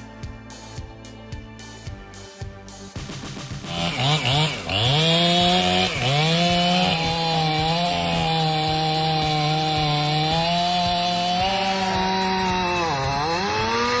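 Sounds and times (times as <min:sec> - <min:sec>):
chainsaw engine revving: 0:03.3 - 0:14.0.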